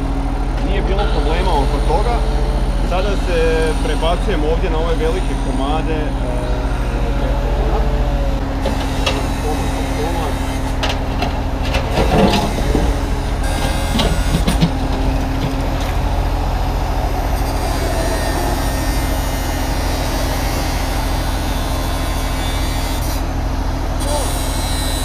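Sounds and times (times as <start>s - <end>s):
excavator diesel engine running: 0.0s - 25.0s
knocks and clanks on concrete: 8.6s - 16.0s.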